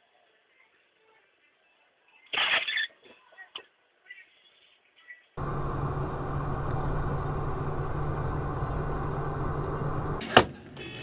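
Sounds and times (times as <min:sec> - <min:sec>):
vehicle engine and road noise: 0:05.4 - 0:11.0.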